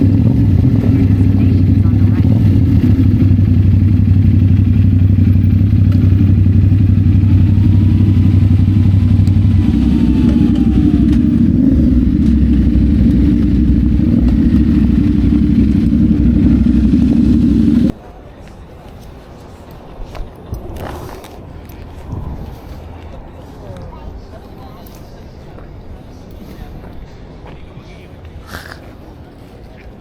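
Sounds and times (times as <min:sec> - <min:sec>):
motorcycle engine running: 0:00.0 - 0:17.9.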